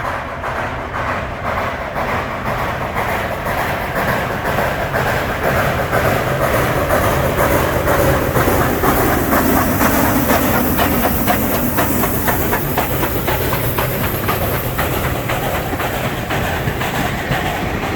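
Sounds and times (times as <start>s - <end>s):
continuous steam hiss: 0.0s - 17.9s
steam locomotive exhaust beats: 0.0s - 17.9s.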